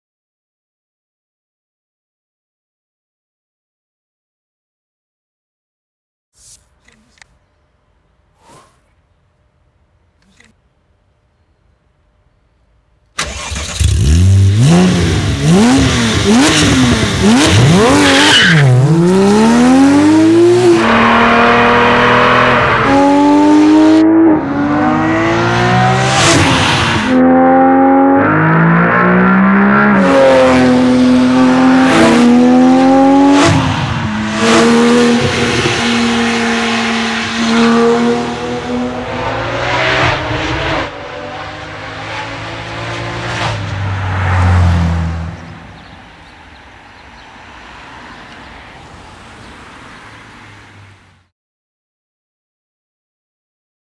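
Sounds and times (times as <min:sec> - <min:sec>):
sports car engine accelerating: 0:13.2 - 0:46.2.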